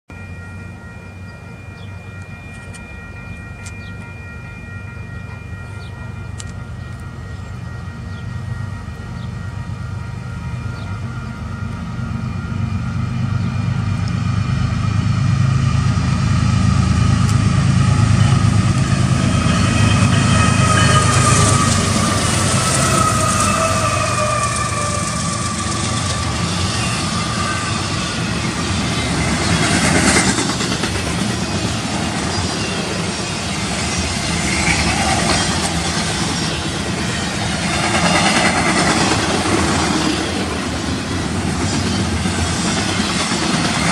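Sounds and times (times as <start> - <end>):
diesel locomotive engine rumble: 0.1 - 43.9
steady high tones: 0.1 - 43.9
train wheels clattering over rails: 27.9 - 43.9.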